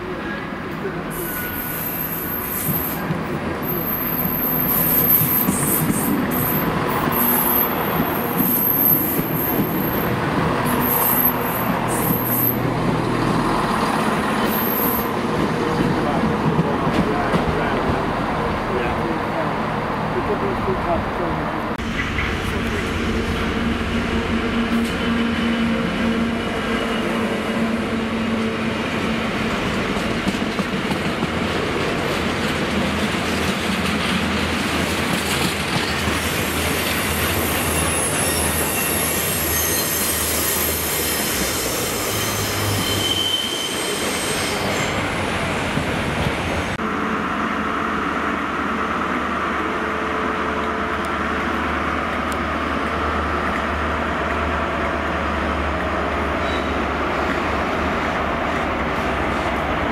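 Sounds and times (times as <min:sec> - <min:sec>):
diesel locomotive engine: 0:00.0 - 0:59.9
freight wagon wheels squealing: 0:35.9 - 0:45.0.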